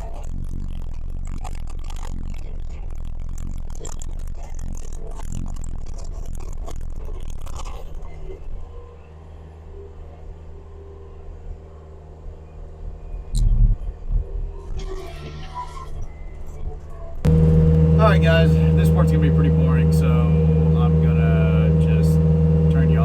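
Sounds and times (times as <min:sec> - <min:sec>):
skid steer engine running: 0:16.2 - 0:23.0.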